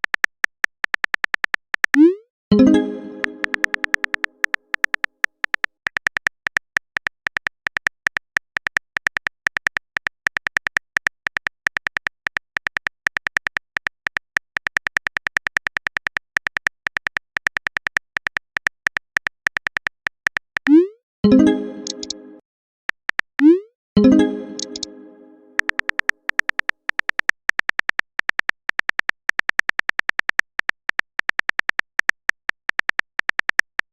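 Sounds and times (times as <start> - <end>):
keyboard typing clicks: 0.0 - 22.4, 23.2 - 33.9
message chime: 2.0 - 4.2, 20.7 - 22.4, 23.5 - 25.7.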